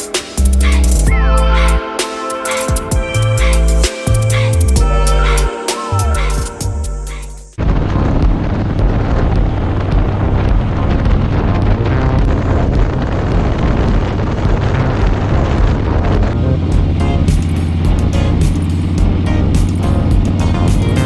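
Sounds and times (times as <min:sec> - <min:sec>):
wind buffeting on microphone: 0:07.6 - 0:17.0
motorcycle engine running: 0:07.6 - 0:21.0.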